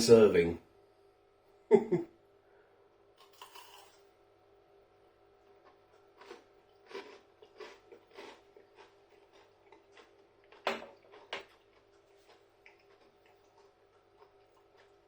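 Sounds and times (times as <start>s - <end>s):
crunchy chewing: 5.5s - 15.0s.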